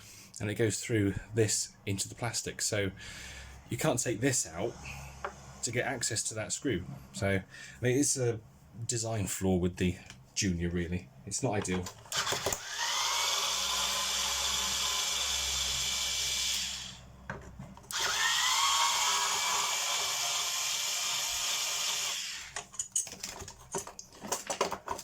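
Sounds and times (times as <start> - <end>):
cordless drill whining: 12.1 - 17.1, 17.9 - 22.6.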